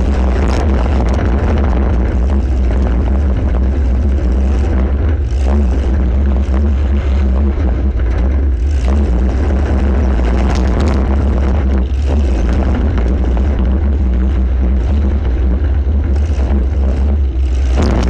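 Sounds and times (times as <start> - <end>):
car engine droning: 0.0 - 18.0.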